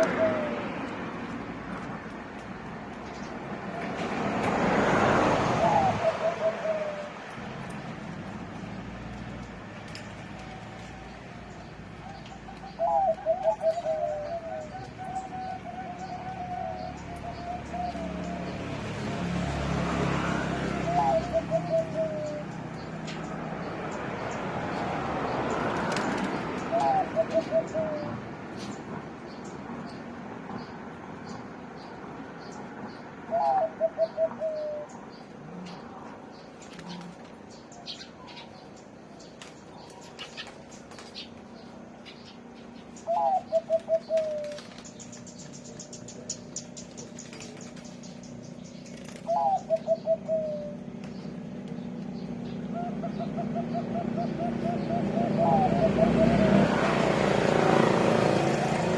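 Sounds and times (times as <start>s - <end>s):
dove trilled cooing: 0.0s - 1.0s, 5.0s - 7.7s, 10.1s - 18.8s, 20.3s - 23.3s, 25.5s - 28.2s, 33.2s - 35.9s, 42.1s - 58.9s
small birds chirping: 0.0s - 58.9s.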